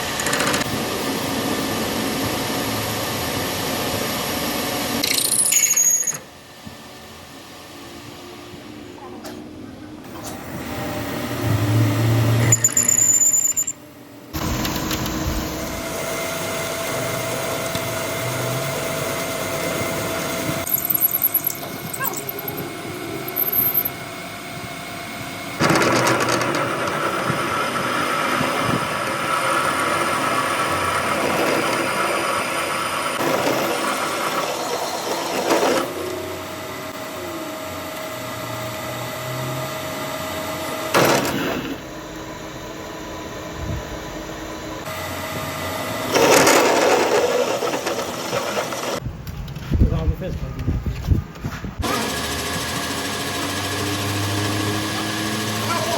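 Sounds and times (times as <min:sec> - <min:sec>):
power tool motor whining on metal: 0:10.2 - 0:49.0, 0:51.8 - 0:55.9.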